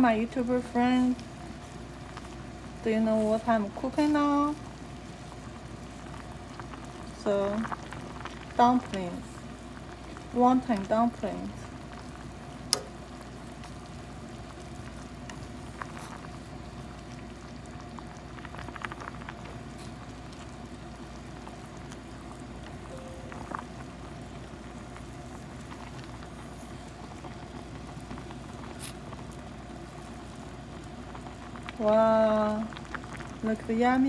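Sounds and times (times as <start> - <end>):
soup boiling in a pot: 0.0 - 34.0.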